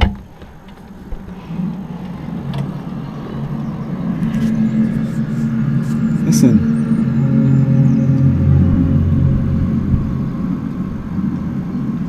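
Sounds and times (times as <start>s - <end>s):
low droning hum: 0.0s - 12.0s.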